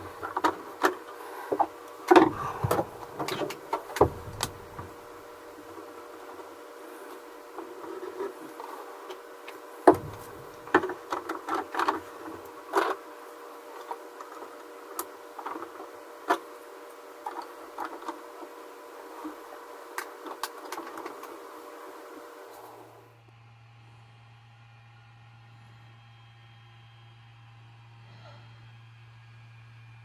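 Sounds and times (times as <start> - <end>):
plastic parts clicking and knocking: 0.0 - 6.5, 7.1 - 13.0, 19.2 - 21.5
machine hum: 0.0 - 23.2.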